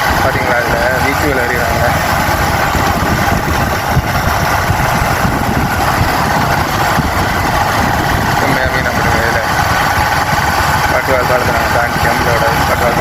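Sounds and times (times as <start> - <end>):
motorcycle riding: 0.0 - 13.0
wind rushing over microphone: 0.0 - 13.0.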